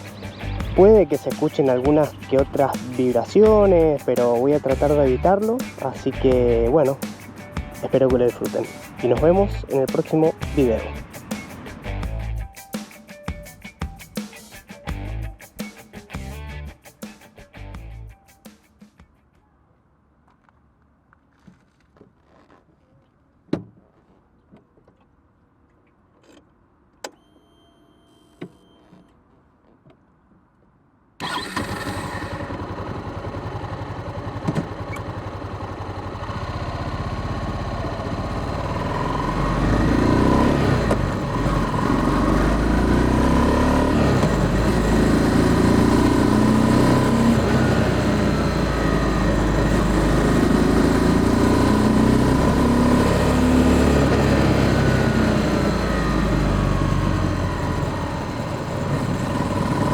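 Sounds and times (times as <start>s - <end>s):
motorcycle engine starting and running: 0.0s - 12.5s, 31.2s - 59.9s.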